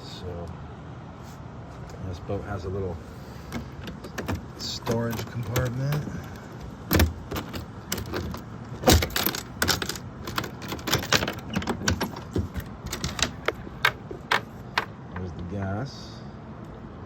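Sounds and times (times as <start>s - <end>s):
clicks knocks and rattles: 3.5s - 15.4s.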